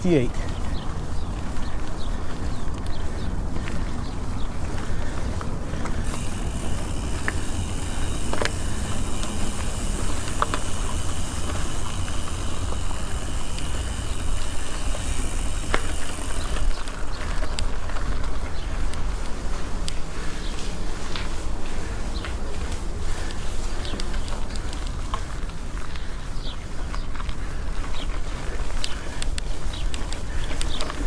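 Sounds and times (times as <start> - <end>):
hiss of tyres and drivetrain: 4.6 - 31.0
sharp bike clicks: 5.2 - 19.2.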